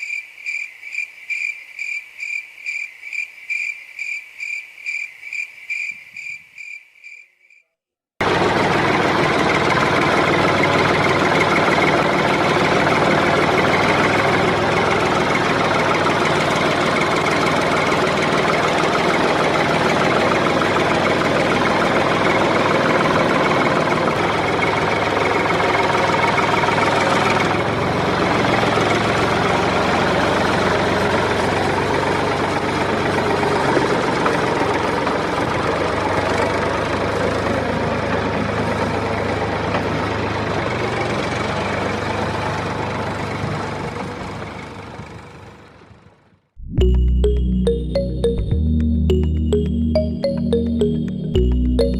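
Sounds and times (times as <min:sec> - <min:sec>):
tractor engine chugging: 0:08.2 - 0:46.1.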